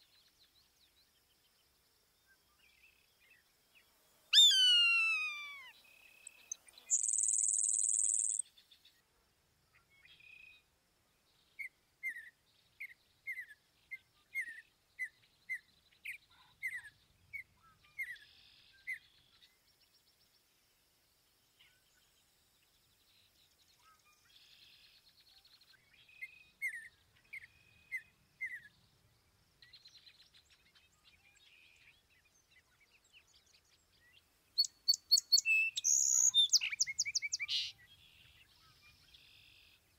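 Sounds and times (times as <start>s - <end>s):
bird calling falling notes: 4.4s - 5.7s.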